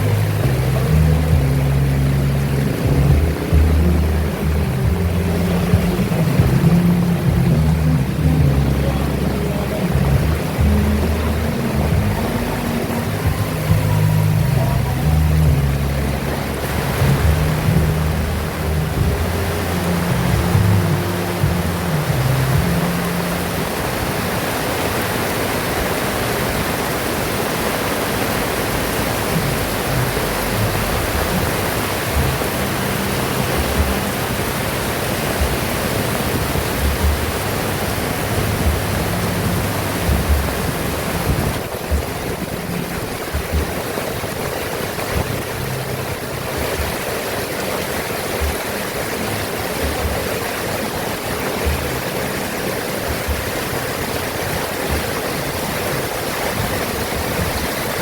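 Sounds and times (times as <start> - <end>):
low thumps: 0.0 - 24.4, 28.7 - 47.3, 48.4 - 58.0
heavy rain pouring: 0.0 - 58.0.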